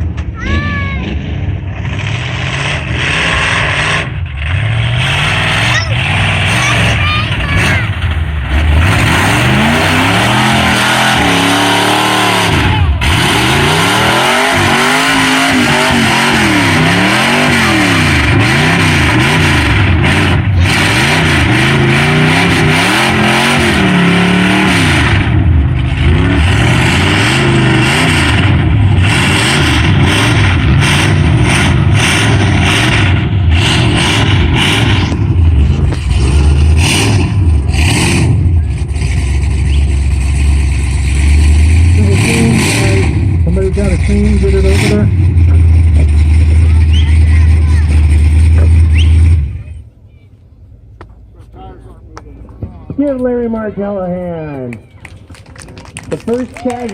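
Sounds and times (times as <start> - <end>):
truck engine revving: 0.0 - 56.9.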